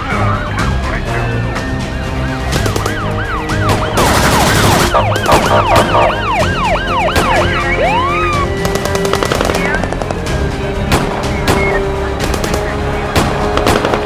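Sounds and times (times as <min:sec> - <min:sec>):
background music: 0:00.0 - 0:14.0
police sirens wailing: 0:00.0 - 0:14.0.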